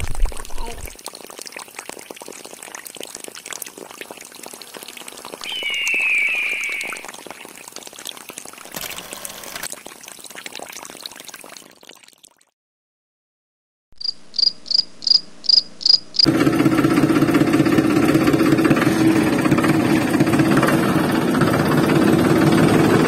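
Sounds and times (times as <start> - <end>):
water pouring and splashing: 0.0 - 12.6
high squeal: 5.4 - 7.1.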